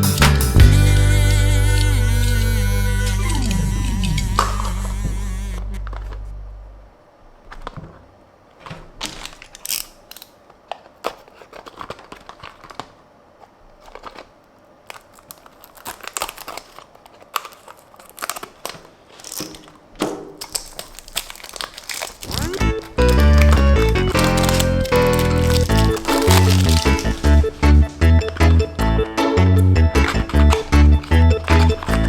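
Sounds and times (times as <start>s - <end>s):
background music: 0.0s - 4.8s, 22.3s - 32.0s
packaging crinkling and crackling: 7.4s - 28.8s, 29.5s - 32.0s.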